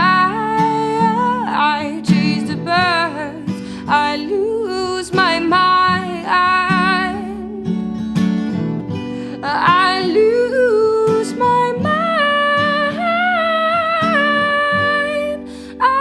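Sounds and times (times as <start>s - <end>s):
acoustic guitar strumming: 0.0s - 16.0s
person singing: 9.4s - 16.0s.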